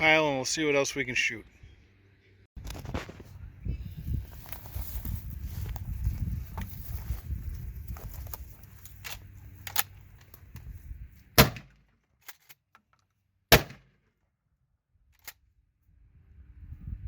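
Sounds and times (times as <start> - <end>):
loud sharp gunshots: 11.4 - 11.8, 13.5 - 13.9.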